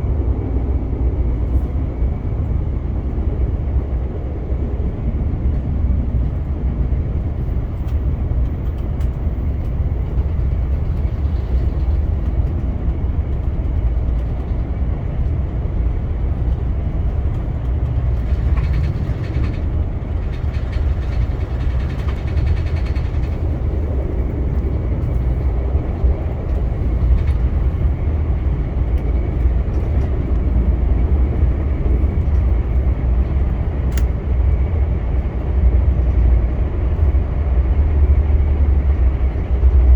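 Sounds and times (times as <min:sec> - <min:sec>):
train wheels rumbling on rails: 0:00.0 - 0:39.9
light clicks: 0:33.9 - 0:34.1.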